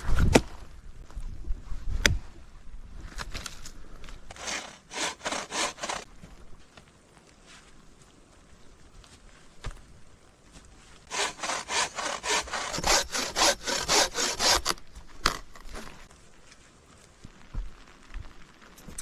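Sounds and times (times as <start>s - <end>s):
hand saw cutting wood: 4.3s - 6.1s, 11.1s - 15.9s.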